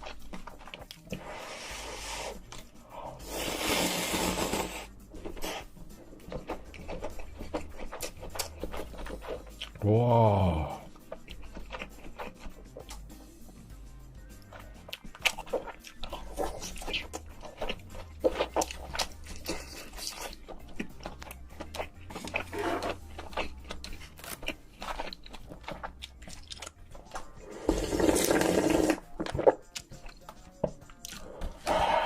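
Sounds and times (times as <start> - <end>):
crunchy bites and chewing: 4.9 - 9.8, 10.4 - 13.2, 14.3 - 27.3.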